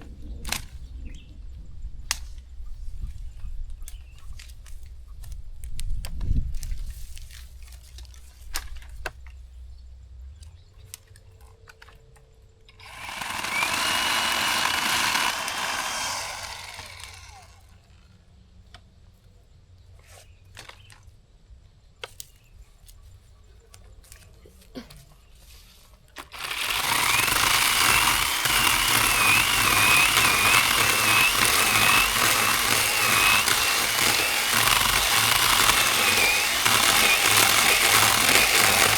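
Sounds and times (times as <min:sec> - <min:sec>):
electric chainsaw whining: 0:12.8 - 0:17.8, 0:26.2 - 0:38.9.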